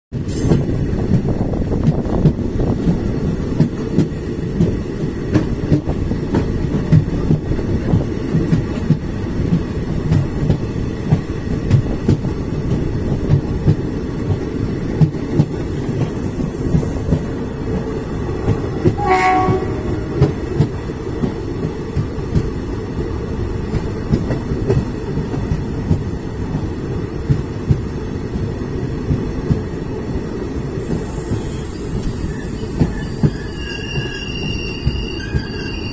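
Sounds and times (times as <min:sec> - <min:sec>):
train rumbling over rails: 0:00.1 - 0:35.9
train horn toot: 0:19.0 - 0:20.2.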